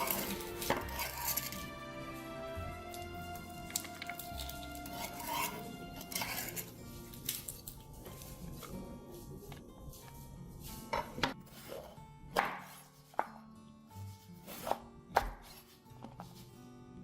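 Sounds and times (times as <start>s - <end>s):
soft background music: 0.0s - 17.0s
knife chopping on cutting board: 11.0s - 13.4s, 14.4s - 15.7s.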